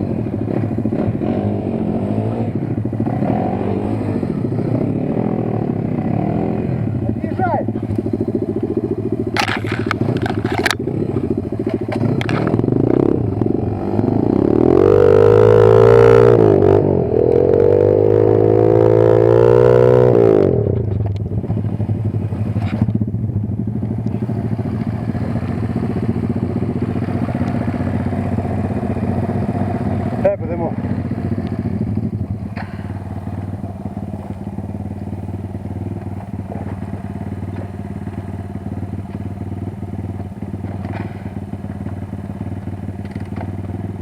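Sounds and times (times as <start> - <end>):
motorbike engine revving: 0.0 - 44.0
sharp clattering knocks: 9.3 - 12.7.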